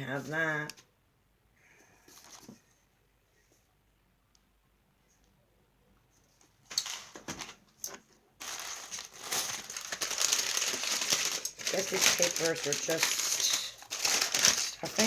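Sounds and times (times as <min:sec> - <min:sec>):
paper packing crinkling: 0:06.7 - 0:15.0.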